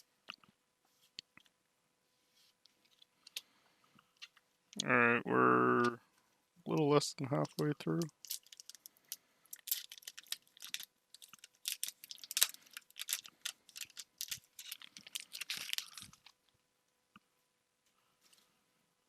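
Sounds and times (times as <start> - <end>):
foil wrapper crinkling: 8.1 - 16.3.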